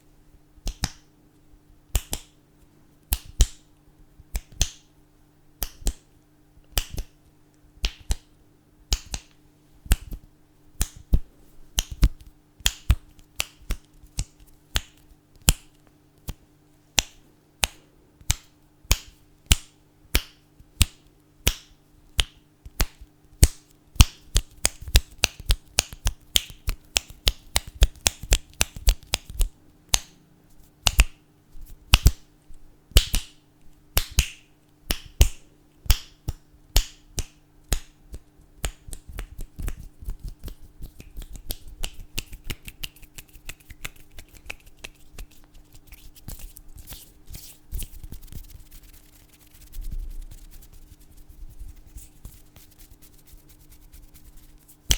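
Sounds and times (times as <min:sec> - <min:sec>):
faint steady hum: 0:00.0 - 0:54.9
fingers snapping: 0:00.6 - 0:01.1, 0:01.9 - 0:02.4, 0:03.1 - 0:03.7, 0:04.3 - 0:04.9, 0:05.6 - 0:07.2, 0:07.8 - 0:08.3, 0:08.9 - 0:16.4, 0:17.0 - 0:30.2, 0:30.8 - 0:32.2, 0:32.9 - 0:49.7.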